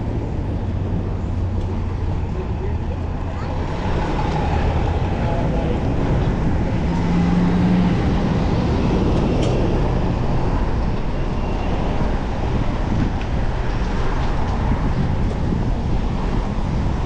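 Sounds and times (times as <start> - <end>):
wind and road noise: 0.0 - 17.0.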